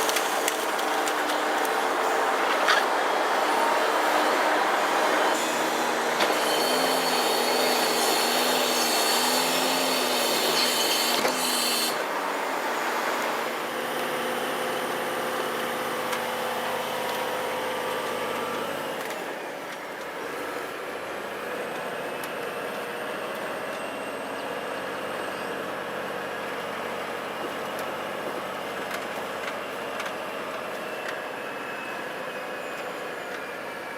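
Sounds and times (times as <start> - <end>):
heavy truck running: 0.0 - 9.9.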